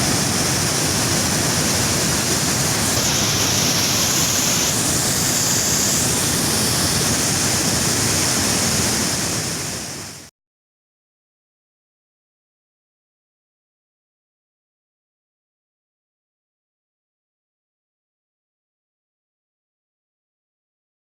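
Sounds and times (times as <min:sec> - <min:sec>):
river waterfall rushing: 0:00.0 - 0:10.2.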